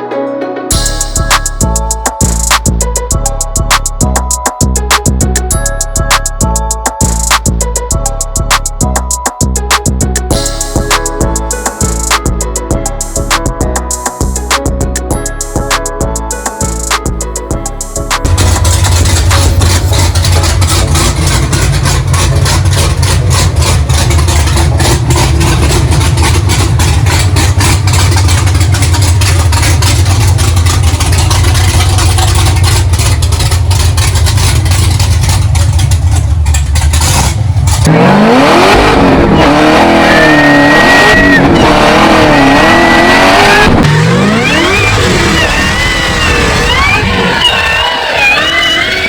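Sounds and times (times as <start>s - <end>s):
car engine idling with choppy lope: 0.7s - 49.0s
engine revving: 16.6s - 49.0s
high supercharger whine: 16.6s - 49.0s.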